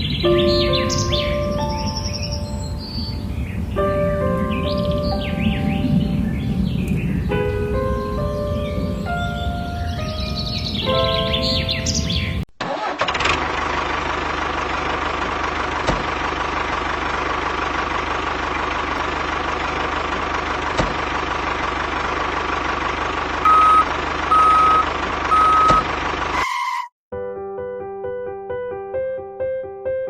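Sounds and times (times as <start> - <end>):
engine whine: 12.6 - 26.7
vehicle engine running: 13.0 - 26.4
short electronic beeps: 23.5 - 26.9.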